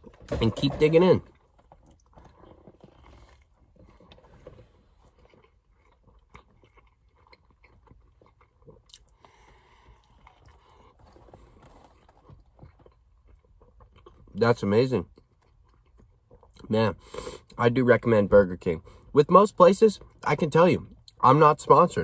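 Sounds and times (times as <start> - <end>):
person chewing close to microphone: 1.3 - 14.4, 15.0 - 16.7.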